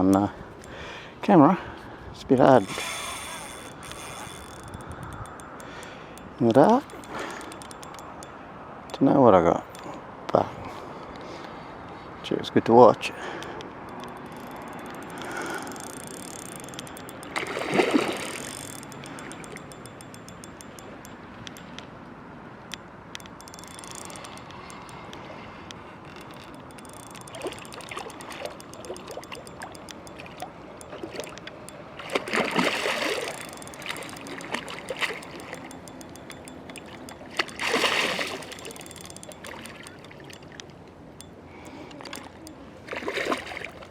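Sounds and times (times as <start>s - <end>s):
small clicks: 0.0s - 0.9s, 2.3s - 10.4s, 13.0s - 21.9s, 22.7s - 43.7s
fish splashing in water: 13.4s - 20.1s, 23.6s - 40.6s, 41.7s - 43.9s.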